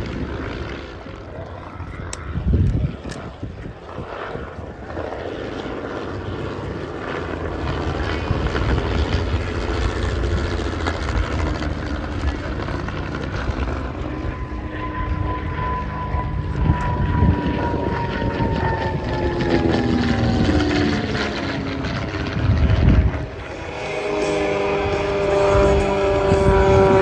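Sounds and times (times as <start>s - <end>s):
propeller aircraft engine passing: 0.0s - 27.0s.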